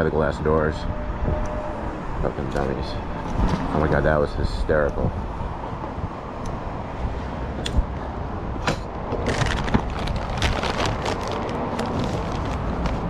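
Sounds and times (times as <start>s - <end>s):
scooter tyre rumble on concrete: 9.0s - 13.0s.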